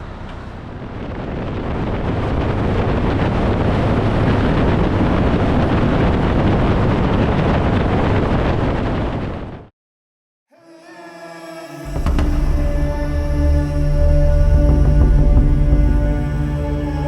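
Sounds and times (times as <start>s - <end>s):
road noise: 0.0s - 2.3s
wind rushing over microphone: 0.0s - 9.7s.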